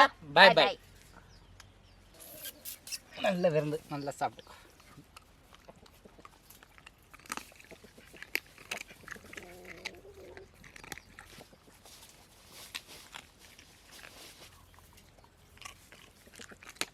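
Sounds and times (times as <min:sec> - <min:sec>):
mouth clicks and smacks chewing: 0:02.2 - 0:03.2, 0:04.6 - 0:16.9.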